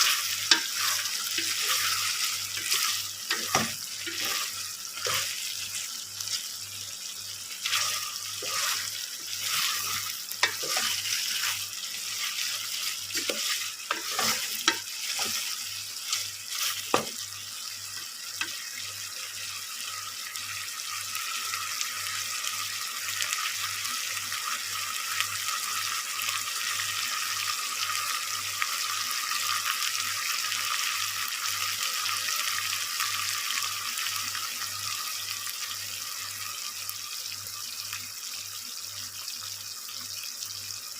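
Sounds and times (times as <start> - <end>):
utensil scraping a pan: 0.0 - 6.5, 7.6 - 17.1
chicken feet sizzling in a pan: 0.0 - 40.9.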